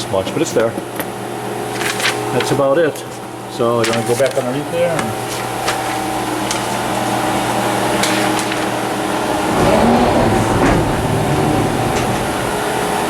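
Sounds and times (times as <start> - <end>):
machine humming: 8.9 - 13.0
low rumble: 9.2 - 13.0.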